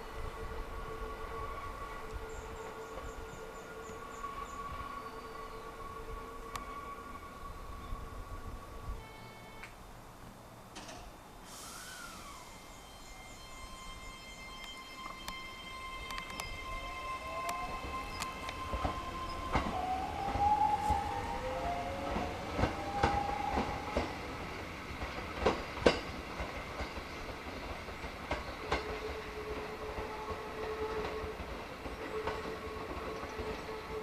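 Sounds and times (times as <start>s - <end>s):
rising whine: 11.5s - 24.0s
steady high tone: 11.6s - 24.0s
train wheels clicking on rails: 17.3s - 34.0s.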